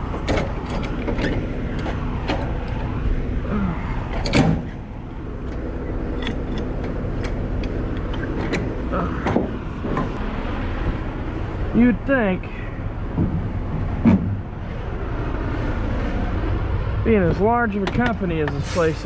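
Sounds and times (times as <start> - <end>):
diesel engine idling: 0.0 - 19.0
metallic clicks and clanks: 0.1 - 2.9, 4.1 - 10.2.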